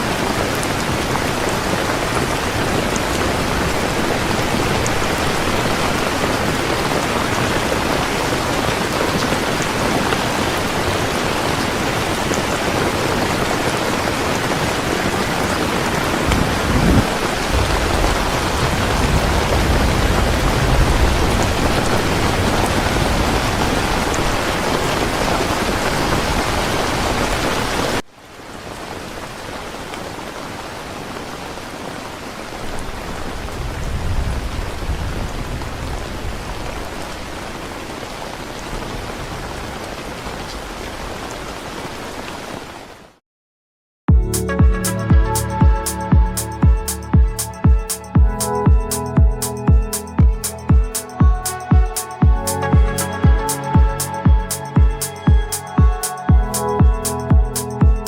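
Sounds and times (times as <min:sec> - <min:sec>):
heavy rain falling: 0:00.0 - 0:43.2, 0:44.4 - 0:58.0
distant thunder rumble: 0:16.0 - 0:24.3.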